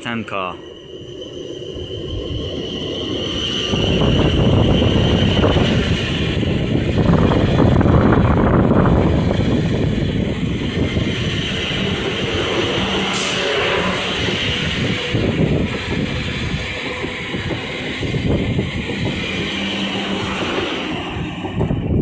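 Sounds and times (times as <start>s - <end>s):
steady high-pitched tone: 0.0s - 5.4s, 9.8s - 15.4s
train wheels rumbling on rail: 0.0s - 22.0s.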